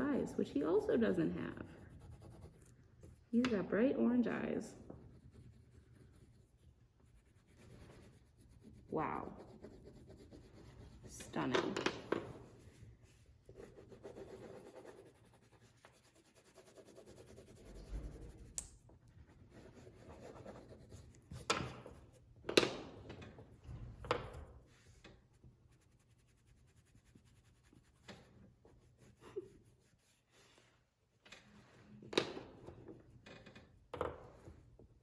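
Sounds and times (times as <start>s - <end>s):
pen scratching on paper: 1.2s - 3.5s, 4.9s - 18.6s, 19.3s - 22.2s.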